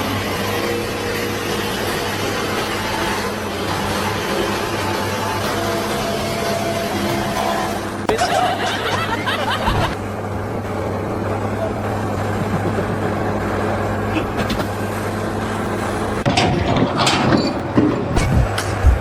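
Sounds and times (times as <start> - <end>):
low machine hum: 0.0 - 19.0
clatter: 16.2 - 19.0.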